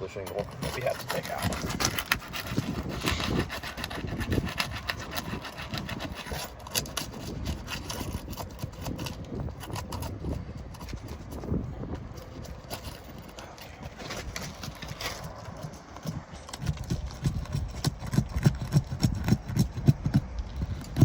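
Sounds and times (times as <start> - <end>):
scraping against roof shingles: 0.0 - 21.0.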